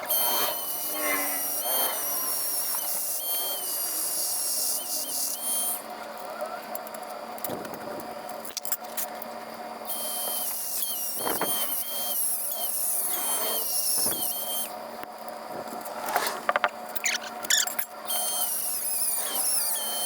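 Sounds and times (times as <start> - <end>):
power tool whining: 0.0 - 6.6, 9.8 - 14.8, 15.9 - 20.0.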